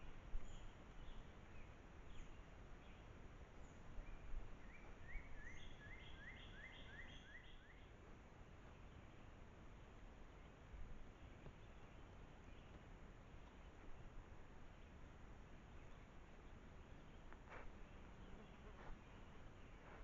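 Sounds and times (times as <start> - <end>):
low background hiss: 0.0 - 20.0
songbird singing: 0.0 - 20.0.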